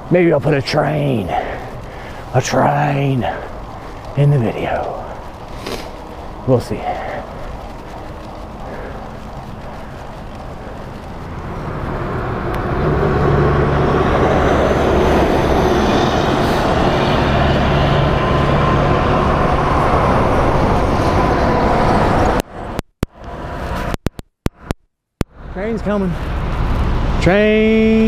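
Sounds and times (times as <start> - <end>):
road and wind noise: 0.0 - 28.0
heavy engine drone: 6.7 - 22.4.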